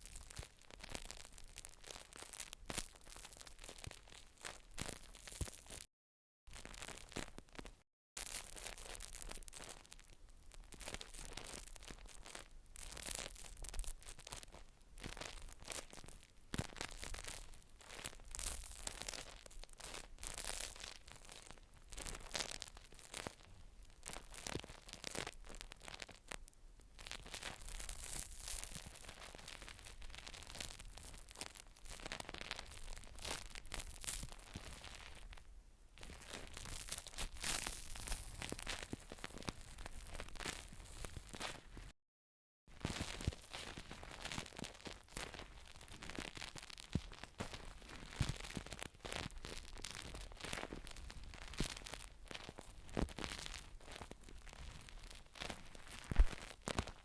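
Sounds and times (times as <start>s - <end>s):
crinkling and scratching handling: 27.1s - 35.4s, 36.0s - 41.9s, 42.8s - 57.0s.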